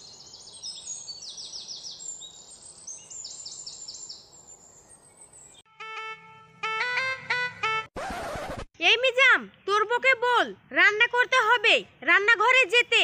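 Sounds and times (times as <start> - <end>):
stepped musical tones: 5.7 - 7.9.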